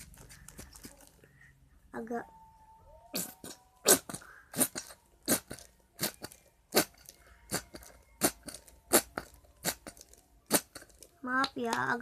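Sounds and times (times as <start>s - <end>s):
slime squelching while stirred: 3.2s - 11.8s.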